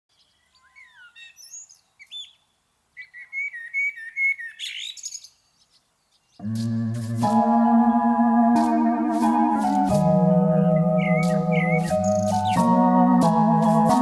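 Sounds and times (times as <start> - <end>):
bird trilling song: 0.1 - 14.0
birds chirping: 0.1 - 14.0.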